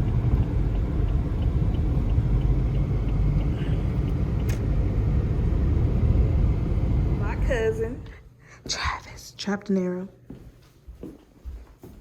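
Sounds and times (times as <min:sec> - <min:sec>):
car road rumble inside cabin: 0:00.0 - 0:08.1.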